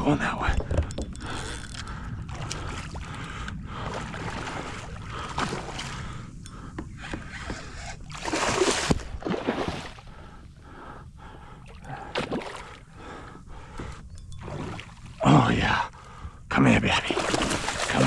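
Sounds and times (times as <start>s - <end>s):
water splashing around kayak: 0.6s - 10.3s, 11.6s - 15.3s, 16.9s - 18.0s.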